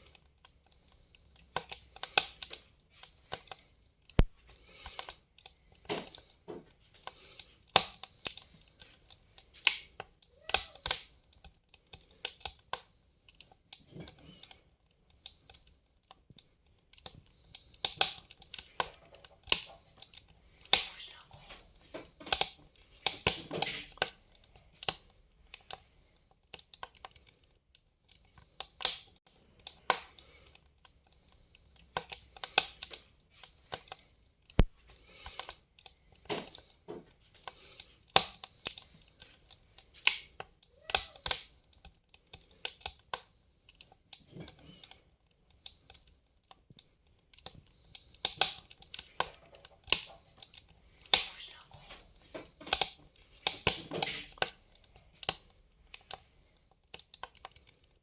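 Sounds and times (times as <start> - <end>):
log fire crackling: 0.0 - 58.0.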